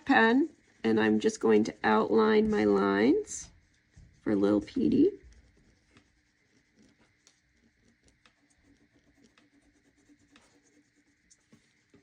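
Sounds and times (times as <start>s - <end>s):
marker scratching on paper: 5.3s - 12.0s.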